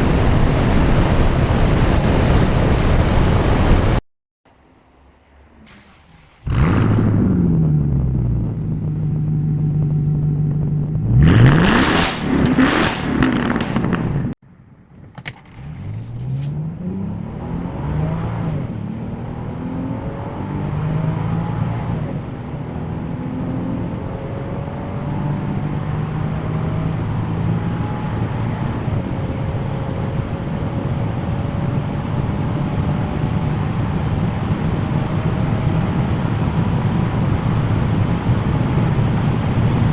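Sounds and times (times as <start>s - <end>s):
car engine revving: 5.4s - 14.4s, 15.4s - 39.9s
second car engine under load: 5.5s - 17.0s.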